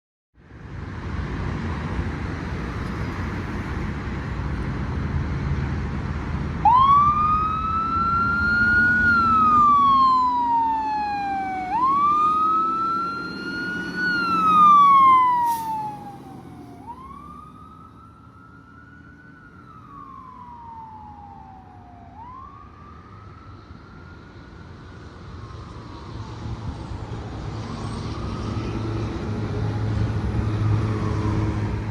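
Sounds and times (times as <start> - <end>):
fire engine running heavily: 0.5 - 31.9
siren wailing: 6.6 - 31.8.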